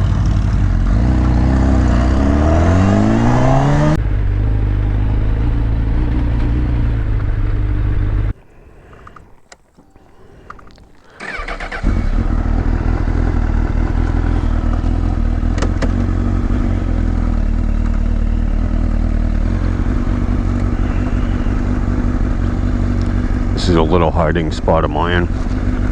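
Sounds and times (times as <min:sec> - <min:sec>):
motorcycle engine idling: 0:00.0 - 0:02.0, 0:04.0 - 0:08.4, 0:09.7 - 0:25.9
motorcycle engine starting: 0:00.0 - 0:25.9
clicks: 0:08.8 - 0:11.8.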